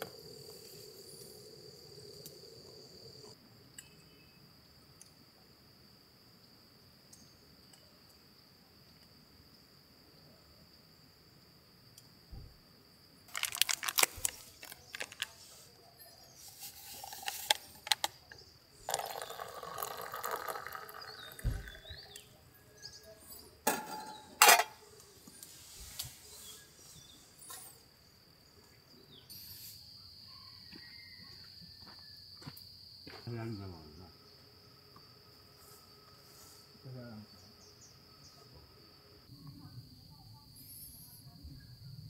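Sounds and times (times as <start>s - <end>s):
crickets chirping: 0.0s - 42.0s
handling clicks and clinks: 13.3s - 15.4s.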